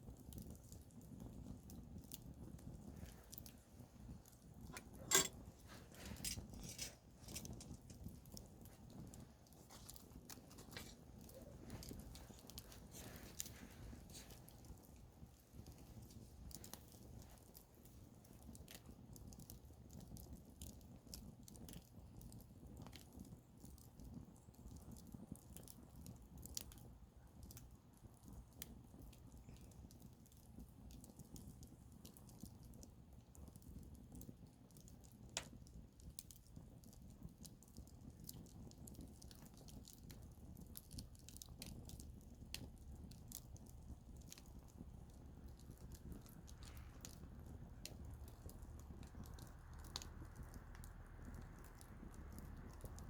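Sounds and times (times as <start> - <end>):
campfire crackling and popping: 0.0 - 53.0
low steady rumble: 42.2 - 53.0.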